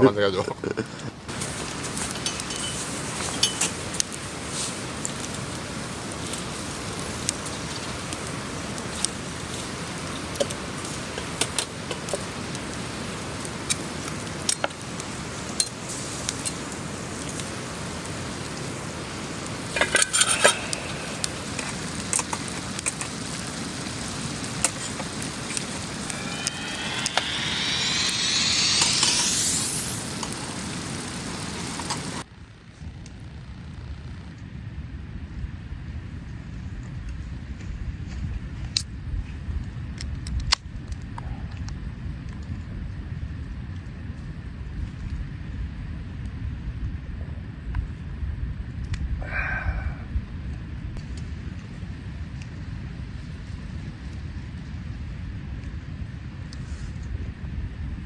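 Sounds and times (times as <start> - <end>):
food sizzling in a pan: 18.7 - 31.7
rising whine: 19.7 - 22.3, 25.1 - 31.6.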